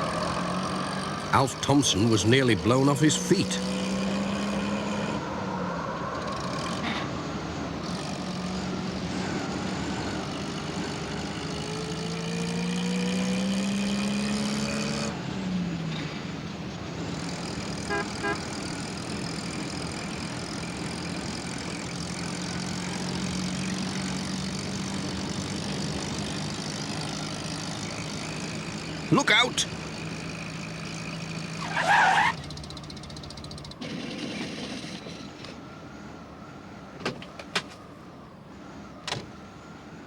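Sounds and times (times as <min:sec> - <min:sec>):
van engine running: 0:15.1 - 0:35.4
horn toots: 0:17.8 - 0:18.6.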